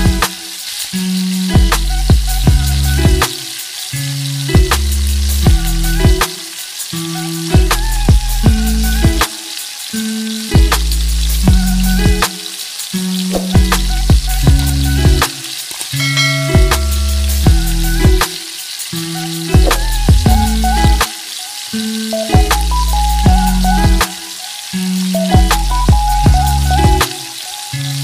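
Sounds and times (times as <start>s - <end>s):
background music with bass: 0.0s - 0.3s, 1.0s - 3.3s, 4.0s - 6.2s, 7.4s - 9.2s, 10.6s - 12.2s, 13.2s - 15.3s, 16.0s - 18.3s, 19.1s - 21.0s, 22.2s - 24.1s, 24.8s - 27.1s
food sizzling in a wok: 0.0s - 28.0s.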